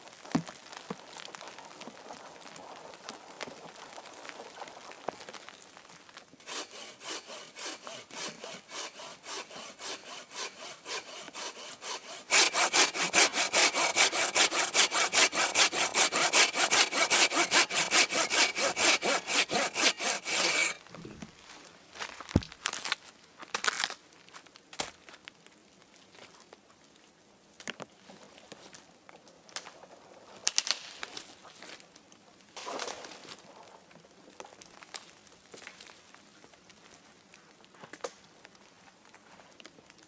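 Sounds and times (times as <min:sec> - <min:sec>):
hand saw cutting wood: 0:06.4 - 0:21.0.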